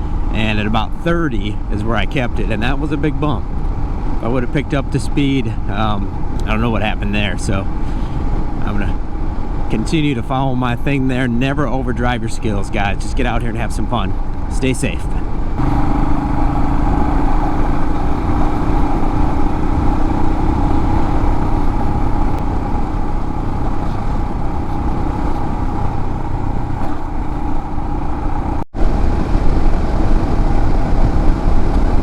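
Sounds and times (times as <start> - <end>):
wind rumble on microphone: 0.0 - 32.0
motorcycle engine running: 15.2 - 32.0.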